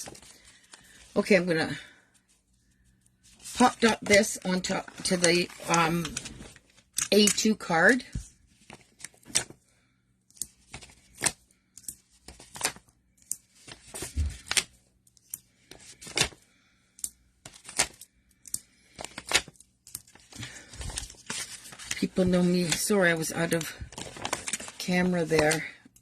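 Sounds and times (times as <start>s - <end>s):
paper rustling: 0.0s - 1.2s, 3.2s - 7.4s, 8.0s - 9.6s, 10.5s - 11.4s, 12.2s - 12.8s, 13.5s - 14.7s, 15.7s - 16.4s, 18.9s - 25.7s.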